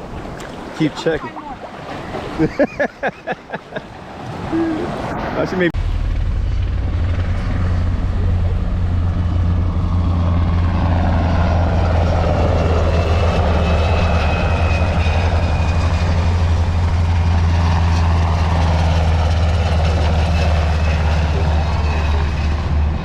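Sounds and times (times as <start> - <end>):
low engine drone: 4.5 - 23.0.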